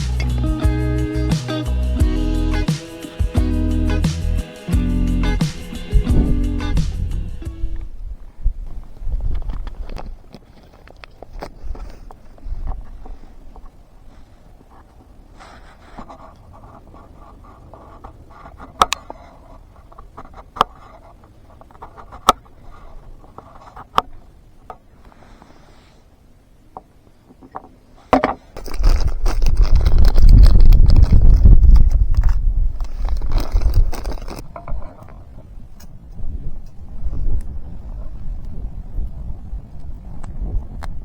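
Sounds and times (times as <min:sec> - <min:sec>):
wind gusts buffeting microphone: 0:05.3 - 0:10.4, 0:28.6 - 0:41.0.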